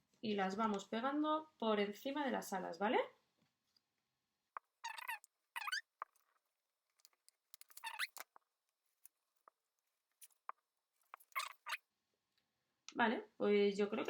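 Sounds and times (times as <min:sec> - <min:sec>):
faint squeaks and rubbing: 0:04.6 - 0:11.9.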